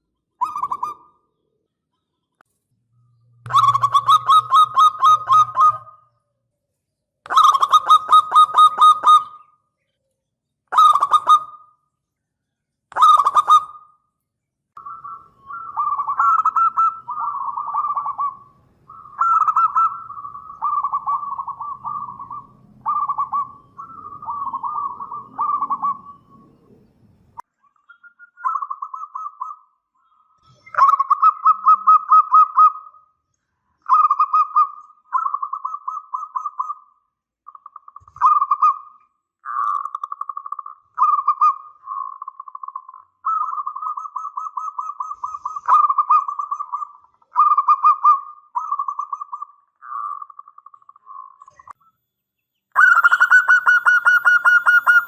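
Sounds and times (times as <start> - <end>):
dove cooing: 3.5 - 6.2, 7.3 - 9.5, 12.9 - 13.8, 14.8 - 27.0, 41.0 - 50.4, 52.8 - 55.0.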